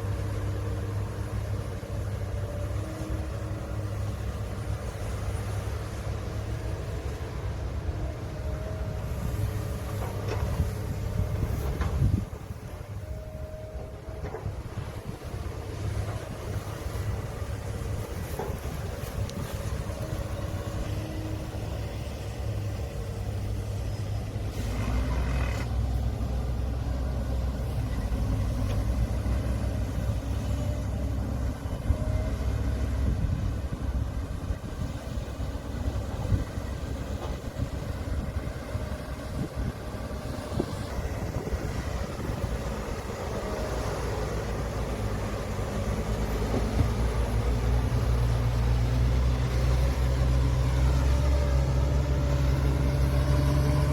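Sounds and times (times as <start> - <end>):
heavy machinery diesel engines rumbling: 0.0 - 53.9.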